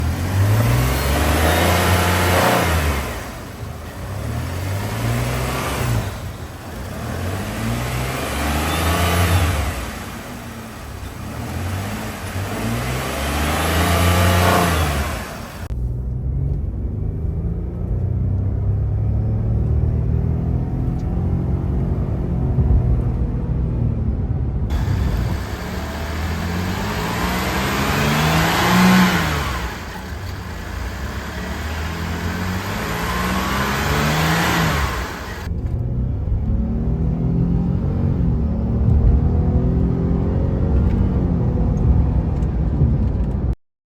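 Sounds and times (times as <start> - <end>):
truck engine revving: 0.0 - 15.7, 24.7 - 42.4.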